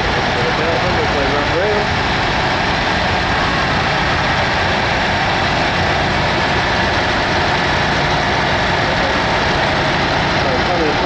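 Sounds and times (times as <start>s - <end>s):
tractor engines rumbling: 0.0s - 11.0s.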